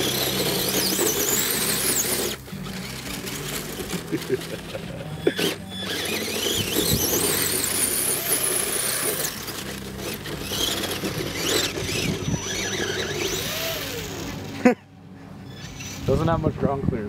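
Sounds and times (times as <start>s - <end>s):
toy truck motor whining: 0.0s - 14.8s, 15.4s - 16.3s.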